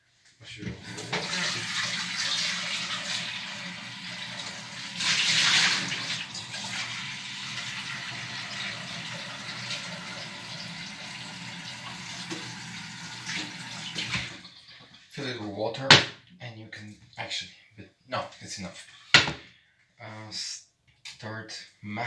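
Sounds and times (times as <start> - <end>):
tap water filling a pot: 0.6 - 14.9.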